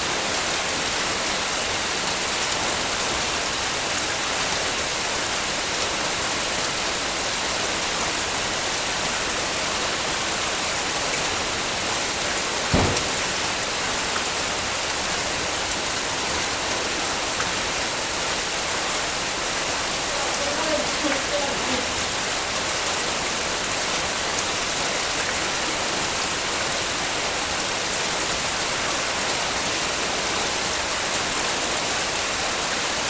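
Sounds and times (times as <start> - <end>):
heavy rain hissing: 0.0 - 33.0
loud thump: 12.7 - 13.6.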